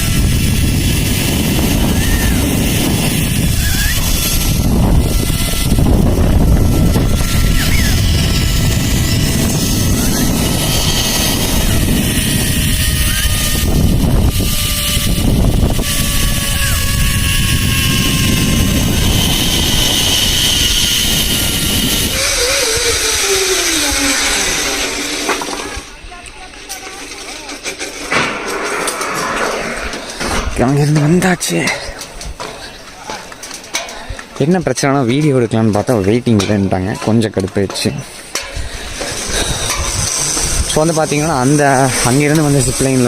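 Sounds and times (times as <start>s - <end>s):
pulleys whining on cable: 0.0s - 26.0s, 26.6s - 29.1s, 38.3s - 43.0s
wind on microphone: 0.0s - 26.3s, 28.1s - 32.6s, 38.5s - 43.0s.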